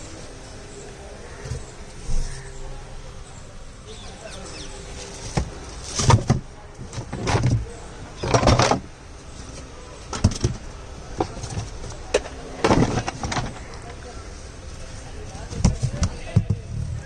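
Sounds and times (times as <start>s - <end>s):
tools and engine parts clattering: 5.0s - 14.0s.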